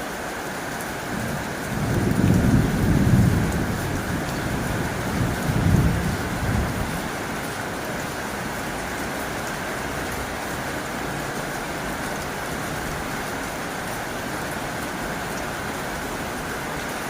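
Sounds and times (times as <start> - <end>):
heavy rain on tin roof: 0.0 - 17.0
low thunder rumble: 1.1 - 7.2.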